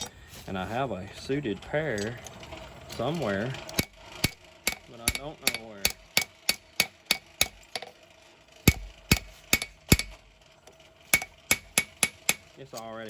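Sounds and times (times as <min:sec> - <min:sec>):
hammer striking anvil: 0:04.2 - 0:07.9, 0:08.7 - 0:10.2, 0:11.1 - 0:12.5.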